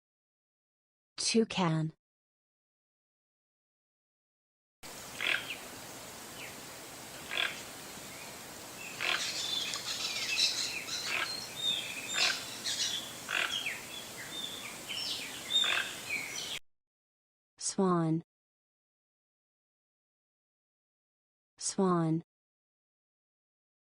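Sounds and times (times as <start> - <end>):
background hiss: 4.9 - 16.6
toucan croaking calls: 5.0 - 16.6.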